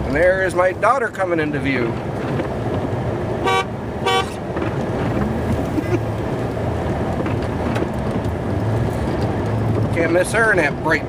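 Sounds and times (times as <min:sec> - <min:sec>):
vehicle horn toots: 0:03.4 - 0:04.4.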